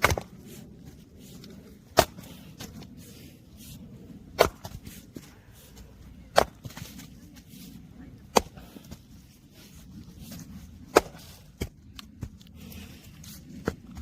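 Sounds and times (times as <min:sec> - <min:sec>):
wood splitting cracks: 0:00.0 - 0:00.3.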